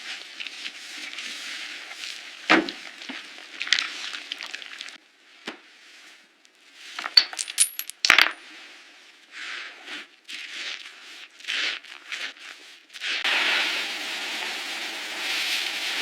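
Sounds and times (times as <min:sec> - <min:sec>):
metallic clinking: 0:07.0 - 0:08.4.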